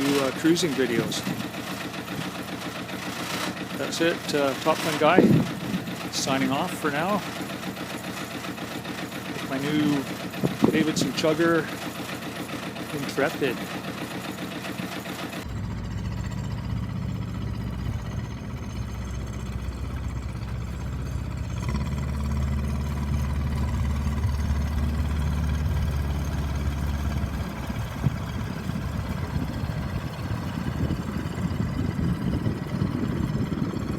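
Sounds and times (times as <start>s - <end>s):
engine knock: 0.0s - 33.9s
marine diesel engine running: 0.0s - 33.9s.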